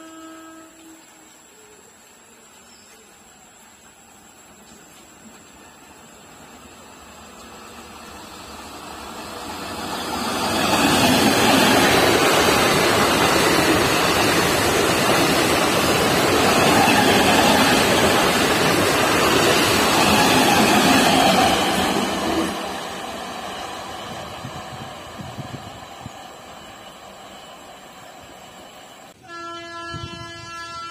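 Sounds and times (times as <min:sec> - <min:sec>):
train passing at speed: 0:00.0 - 0:30.9.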